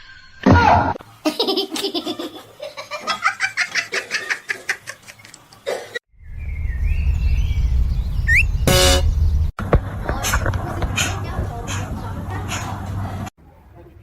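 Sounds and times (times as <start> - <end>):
steady low rumble: 6.2 - 10.1.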